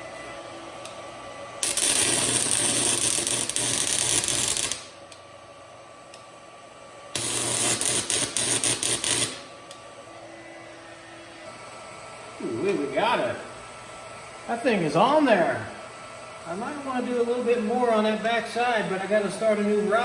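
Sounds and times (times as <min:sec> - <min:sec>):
stick welding arc crackling: 0:01.6 - 0:05.2, 0:07.1 - 0:09.8.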